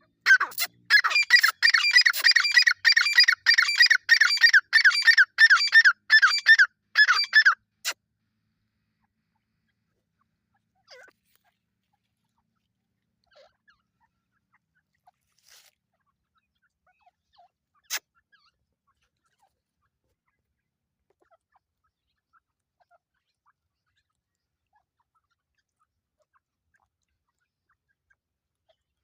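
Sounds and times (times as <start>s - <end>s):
francolins chirping and calling: 0.3s - 8.0s.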